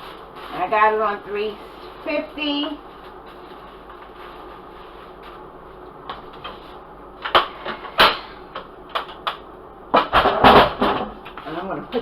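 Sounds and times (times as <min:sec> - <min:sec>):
kitchen items knocking and clunking: 0:09.9 - 0:12.0.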